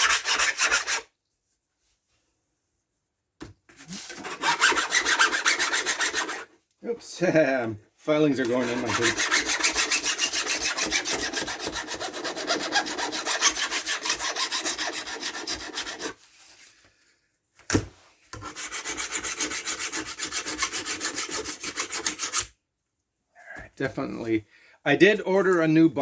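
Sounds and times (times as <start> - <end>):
file rasping on steel: 0.0 - 1.1, 3.9 - 6.5, 8.4 - 16.2, 18.4 - 22.5.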